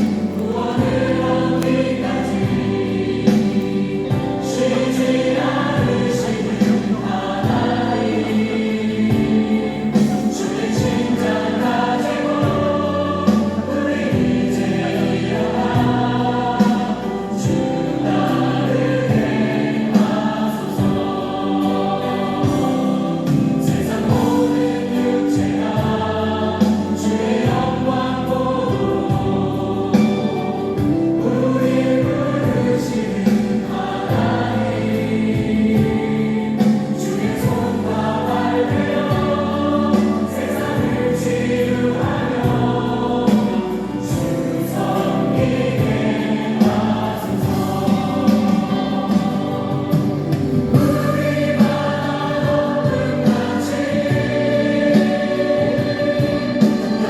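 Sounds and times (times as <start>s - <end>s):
backing music: 0.0s - 57.0s
choir singing a worship song: 0.0s - 57.0s.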